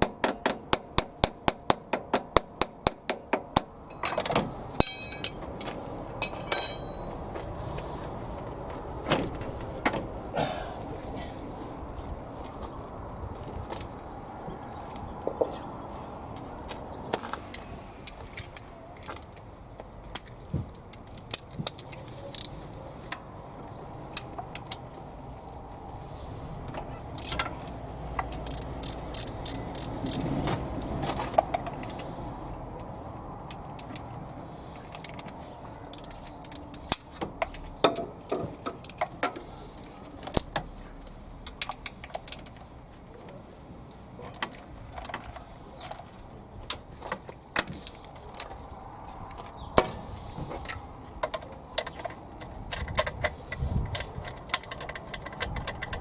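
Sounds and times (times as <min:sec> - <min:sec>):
metal hand tools clinking: 0:03.9 - 0:07.3.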